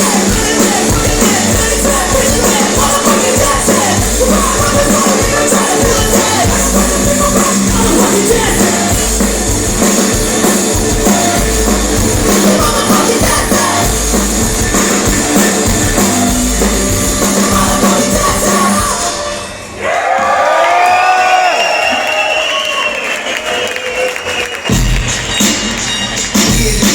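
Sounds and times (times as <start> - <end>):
person singing: 0.0 - 9.2, 12.2 - 14.2, 16.8 - 19.4
punk rock band playing live: 0.0 - 19.6, 24.7 - 26.9
drums: 0.0 - 26.9.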